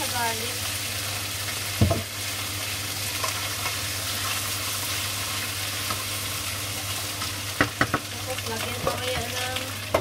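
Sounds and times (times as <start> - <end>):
beans sizzling in a frying pan: 0.0 - 10.0
wooden spatula knocking pan: 7.6 - 8.1.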